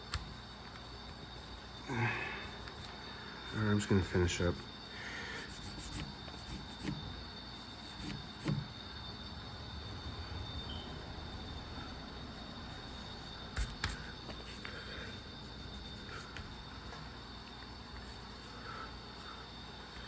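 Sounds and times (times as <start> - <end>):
steady high-pitched whine: 0.0 - 20.0
pencil scratching on paper: 5.3 - 8.7, 11.3 - 20.0.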